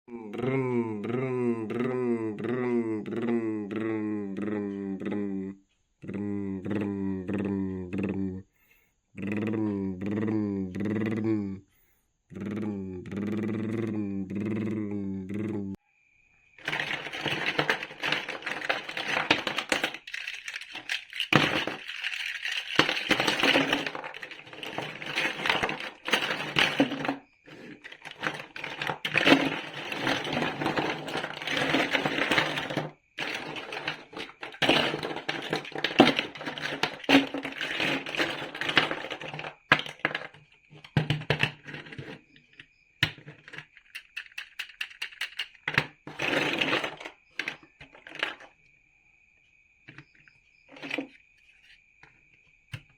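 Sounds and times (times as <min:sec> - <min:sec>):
plastic bricks clattering and clicking: 0:16.6 - 0:48.5, 0:50.7 - 0:51.2.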